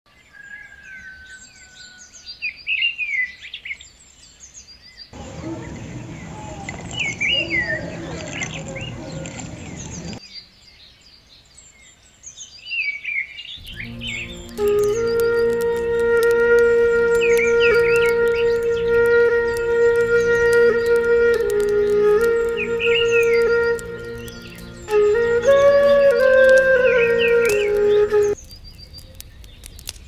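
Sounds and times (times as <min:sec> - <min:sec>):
small birds chirping: 0:00.4 - 0:30.0
music: 0:13.6 - 0:28.4.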